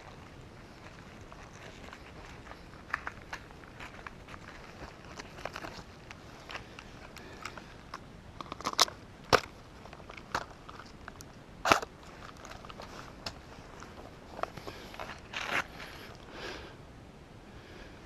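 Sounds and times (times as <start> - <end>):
footsteps crunching on dry brush: 0.0 - 7.7, 11.8 - 16.2.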